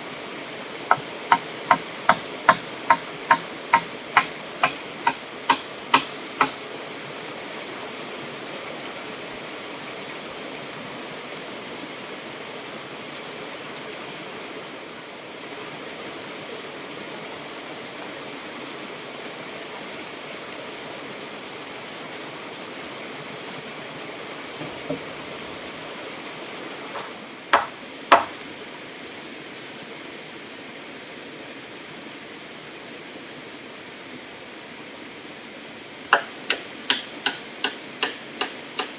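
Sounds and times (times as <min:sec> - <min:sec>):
fast-flowing water rushing: 0:00.0 - 0:18.0, 0:35.8 - 0:38.9
hammer strikes: 0:00.9 - 0:06.7, 0:27.0 - 0:28.4, 0:36.1 - 0:38.9.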